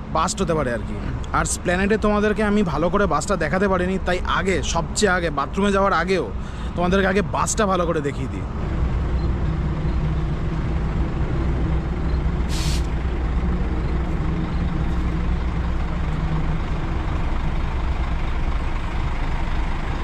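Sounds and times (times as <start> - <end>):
diesel bus engine idling: 0.0 - 20.0
air brake hiss: 12.5 - 13.0.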